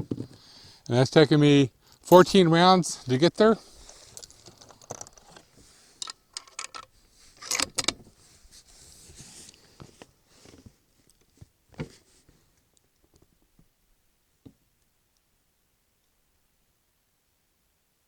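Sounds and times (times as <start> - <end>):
rifle bolt clicking and rattling: 3.9 - 8.0.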